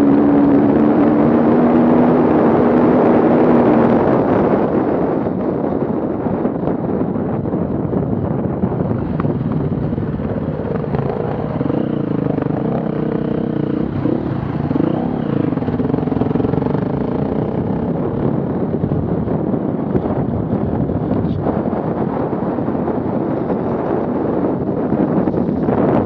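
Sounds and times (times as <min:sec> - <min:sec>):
vehicle engine revving: 0:00.0 - 0:04.0, 0:08.9 - 0:19.2
wind rumble on microphone: 0:00.0 - 0:26.0.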